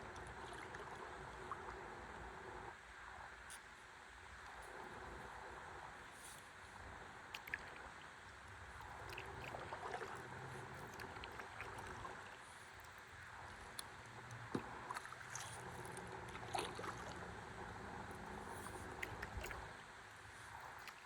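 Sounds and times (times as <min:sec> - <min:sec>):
river water lapping: 0:00.0 - 0:02.6, 0:04.5 - 0:21.0
small splashes and drips: 0:07.3 - 0:21.0.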